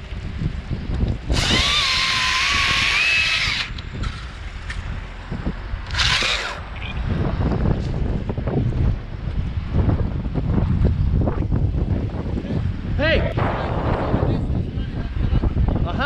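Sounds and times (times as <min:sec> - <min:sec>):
gusty wind on microphone: 0:00.0 - 0:16.0
battery chainsaw motor whine: 0:01.2 - 0:03.9, 0:05.8 - 0:06.6.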